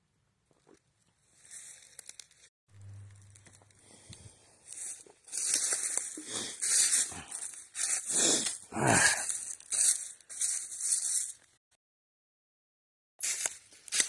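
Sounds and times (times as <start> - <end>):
footsteps crunching through dry leaves: 1.4 - 2.4, 3.4 - 11.5, 13.2 - 14.0.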